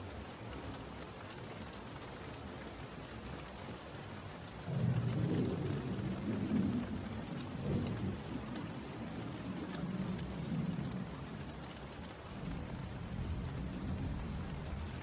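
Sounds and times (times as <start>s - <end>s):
steady rain falling: 0.0s - 15.0s
thunder rumbling: 4.7s - 11.2s.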